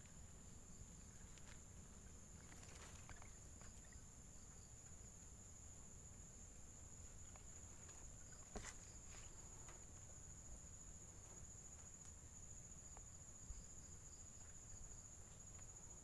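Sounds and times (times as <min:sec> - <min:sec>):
insect trill: 0:00.0 - 0:16.0
faint ticks: 0:11.2 - 0:13.2.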